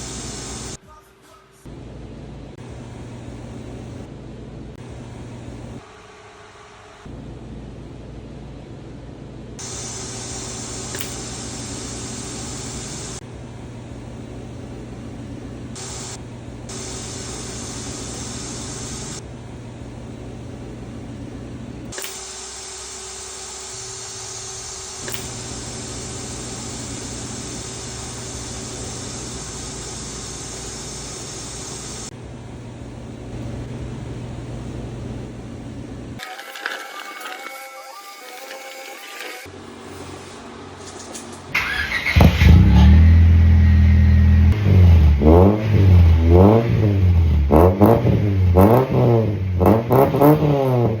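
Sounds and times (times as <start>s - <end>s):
broad hiss: 0.0s - 0.8s, 9.6s - 13.2s, 15.8s - 19.2s, 22.0s - 32.1s
car engine running: 41.6s - 51.0s.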